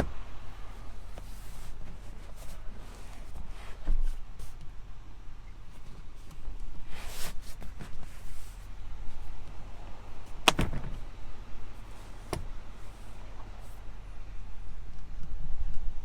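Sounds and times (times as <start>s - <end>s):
truck door shutting thud: 10.3s - 11.2s.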